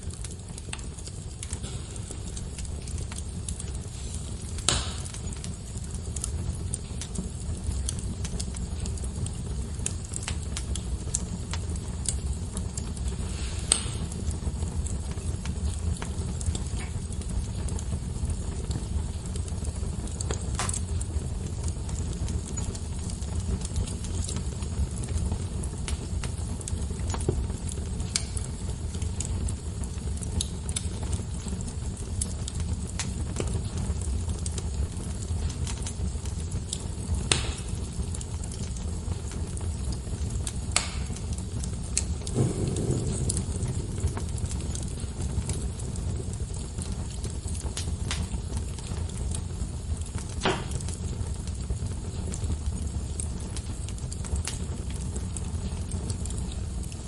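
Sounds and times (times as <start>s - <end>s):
wood fire crackling: 0.0s - 57.0s
low rumble: 42.2s - 46.7s.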